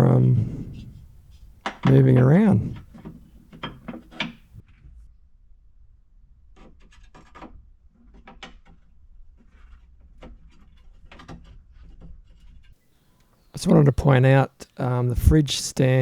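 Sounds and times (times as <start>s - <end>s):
rails scraping and rubbing: 0.0s - 4.5s.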